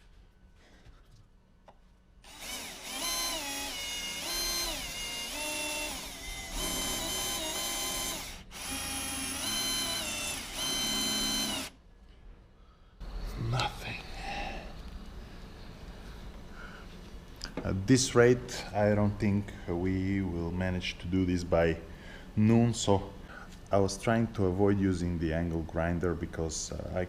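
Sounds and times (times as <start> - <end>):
electric drill whining into metal: 2.2 - 11.8.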